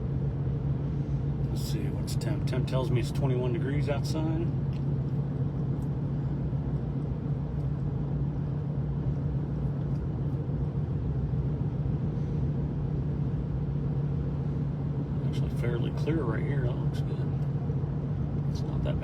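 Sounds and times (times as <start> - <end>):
car cabin drone while driving: 0.0 - 19.0.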